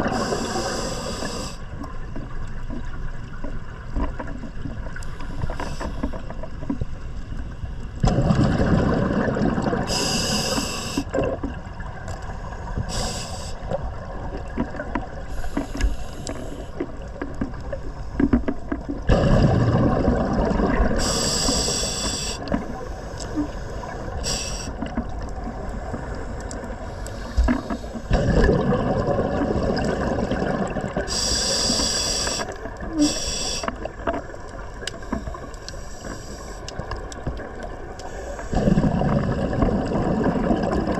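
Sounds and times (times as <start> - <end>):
exhaled bubbles rushing: 8.0 - 10.1, 18.9 - 21.2, 27.4 - 31.1, 38.5 - 40.9
regulator hissing: 21.0 - 22.5.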